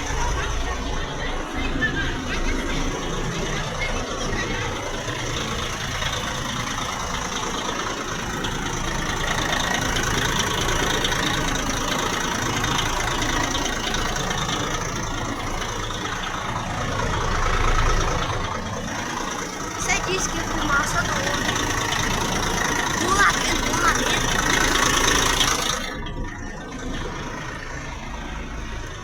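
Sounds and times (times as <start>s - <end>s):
diesel bus engine idling: 0.0s - 29.0s.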